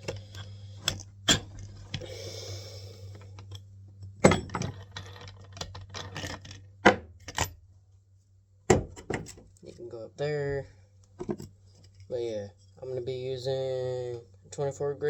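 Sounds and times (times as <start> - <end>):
steady low hum: 0.0 - 15.0
metal tools clinking on workbench: 3.5 - 7.6.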